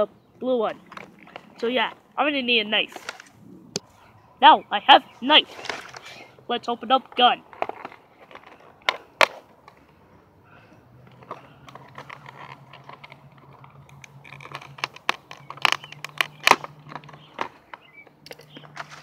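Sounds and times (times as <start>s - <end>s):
scraping and crackling: 0.7s - 2.1s, 2.8s - 4.0s, 5.4s - 6.4s, 7.0s - 10.0s, 10.6s - 19.0s.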